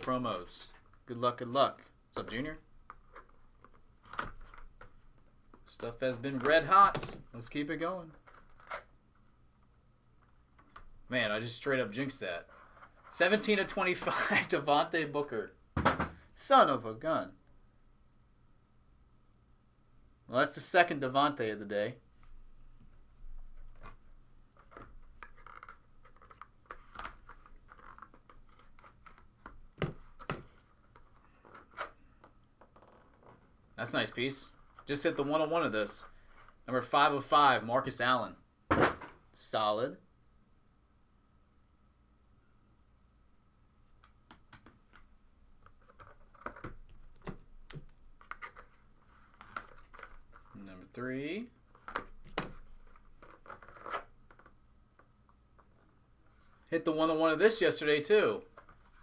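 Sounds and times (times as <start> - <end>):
trading cards and packaging handled: 22.2 - 33.6, 44.3 - 50.6, 51.6 - 54.6
cardboard and plastic scraping: 51.7 - 54.5.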